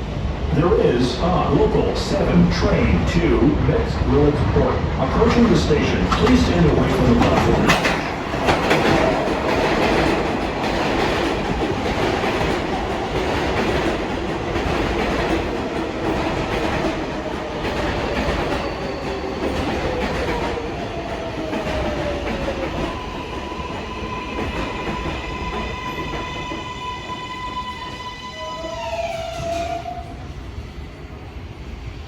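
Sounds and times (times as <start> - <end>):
train whine: 0.0 - 32.0
train wheels clattering: 5.2 - 27.2.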